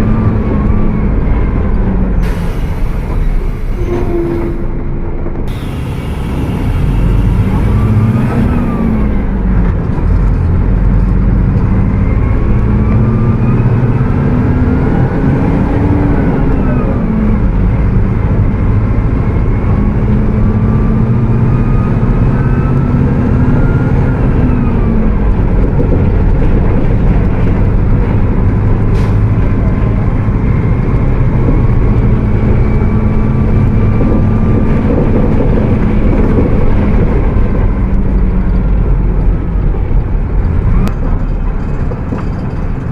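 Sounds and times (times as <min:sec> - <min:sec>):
bus diesel engine revving: 0:00.0 - 0:42.9
high whine: 0:00.7 - 0:09.7.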